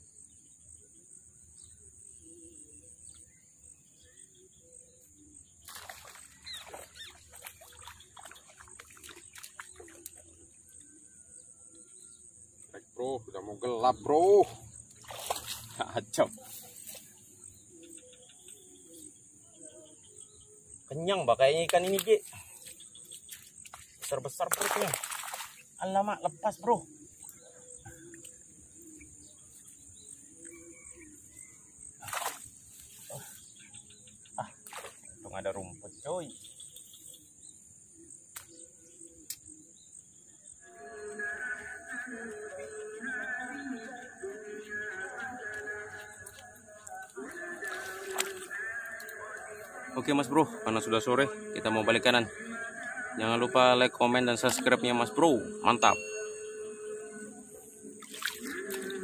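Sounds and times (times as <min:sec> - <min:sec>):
faint bird chirps: 0:00.0 - 0:14.5, 0:15.1 - 0:50.3
insects buzzing: 0:00.0 - 0:59.0
fish splashing at water surface: 0:05.7 - 0:10.2, 0:24.5 - 0:25.7, 0:47.6 - 0:48.6, 0:58.0 - 0:59.0.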